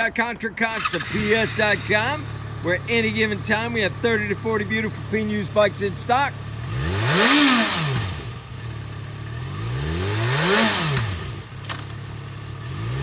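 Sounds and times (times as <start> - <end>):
motorcycle engine idling: 0.7 - 10.0, 10.8 - 13.0.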